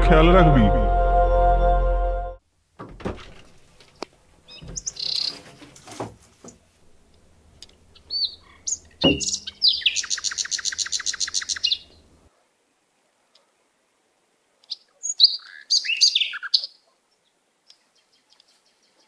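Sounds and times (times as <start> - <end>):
loud thump: 2.8 - 3.6, 9.0 - 9.4
small birds chirping: 3.8 - 5.7, 6.4 - 12.3, 14.6 - 19.0.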